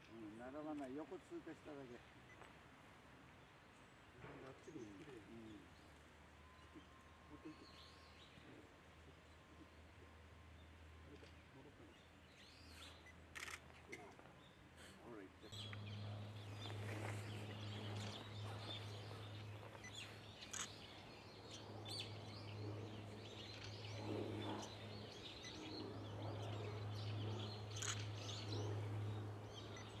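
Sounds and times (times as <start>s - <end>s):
steady low hum: 4.4s - 30.0s
sharp bird chirps: 15.5s - 30.0s.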